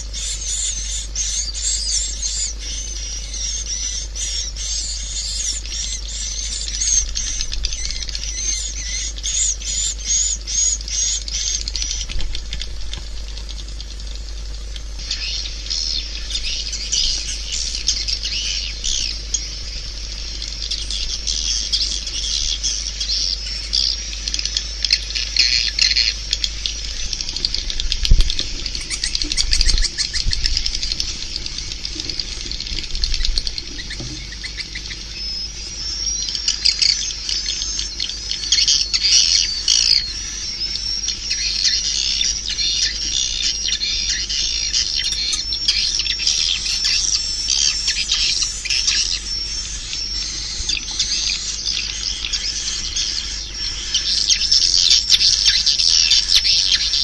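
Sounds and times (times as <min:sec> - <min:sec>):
steady low hum: 0:00.0 - 0:57.0
swiftlets twittering and chirping: 0:00.0 - 0:57.0.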